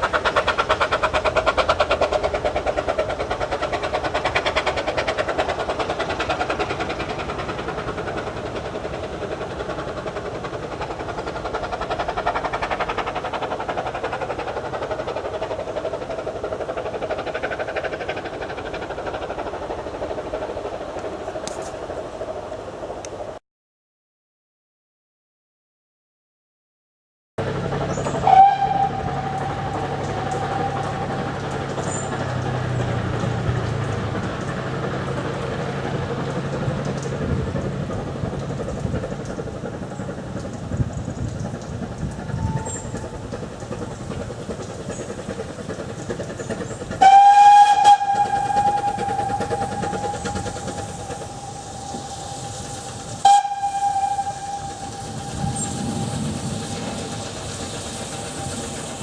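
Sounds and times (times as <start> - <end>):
train running: 0.0 - 23.4, 27.4 - 59.0
steam locomotive whistle: 28.0 - 31.3, 42.3 - 43.0, 47.0 - 57.1.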